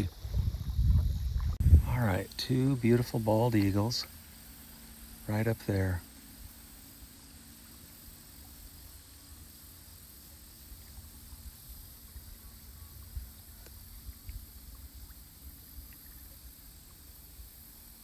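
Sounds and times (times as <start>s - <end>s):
wind rumble on microphone: 0.0s - 4.1s, 10.7s - 18.0s
faint high hiss: 0.0s - 18.0s.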